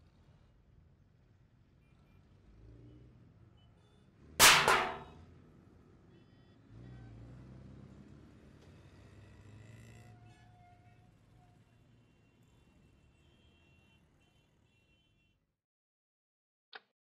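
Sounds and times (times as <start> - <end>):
loud bang: 4.4 - 5.2.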